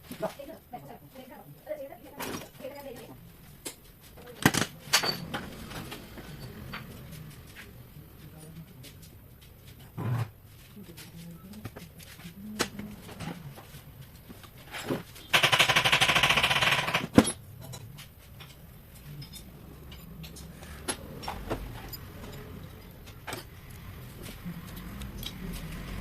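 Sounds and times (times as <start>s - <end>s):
power tool hammering rattle: 15.3s - 17.2s
light clinks and taps: 17.4s - 25.7s.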